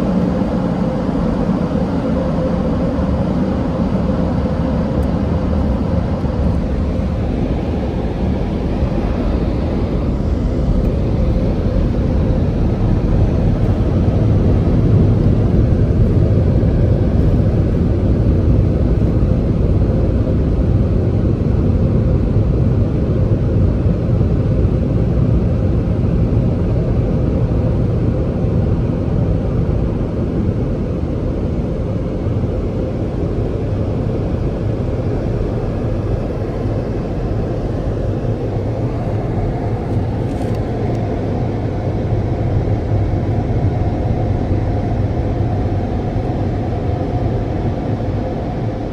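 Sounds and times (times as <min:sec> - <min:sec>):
car wash air dryers blowing: 0:00.0 - 0:21.1, 0:33.2 - 0:48.9.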